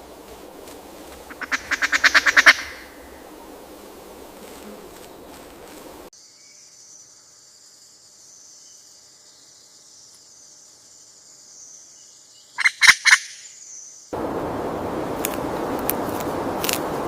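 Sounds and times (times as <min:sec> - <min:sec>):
pheasant calls: 0:00.0 - 0:06.1, 0:12.6 - 0:13.5
high insect drone: 0:00.0 - 0:12.7
loud crackling crunching noise: 0:15.0 - 0:17.0.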